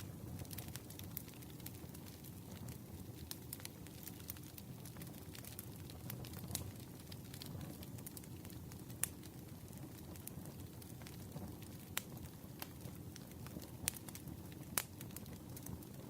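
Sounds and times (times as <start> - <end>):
campfire crackling and popping: 0.0 - 16.0
fire low rumble: 0.0 - 16.0.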